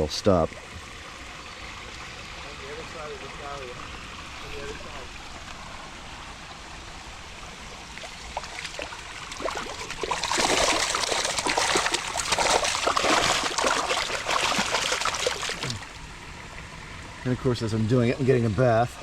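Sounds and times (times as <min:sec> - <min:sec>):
pond water trickling: 0:00.0 - 0:19.0
fish splashing at the surface: 0:07.9 - 0:16.0.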